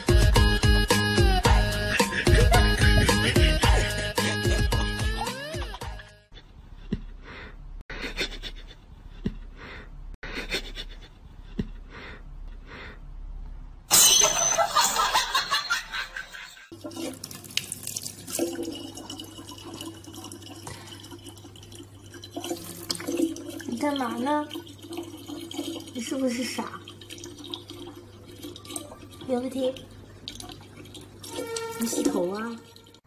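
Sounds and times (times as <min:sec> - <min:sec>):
tap water running into bottle: 0:16.7 - 0:33.0.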